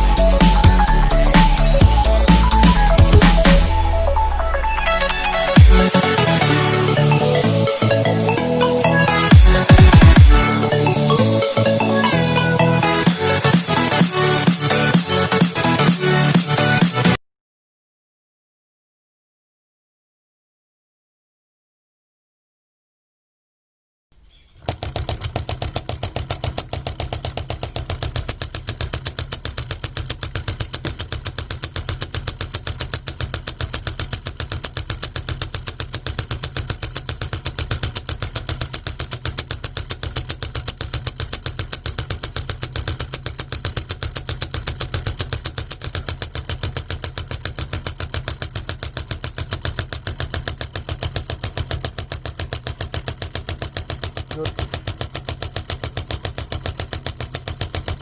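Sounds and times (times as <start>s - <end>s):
solenoid engine plunger clattering: 24.5s - 58.0s.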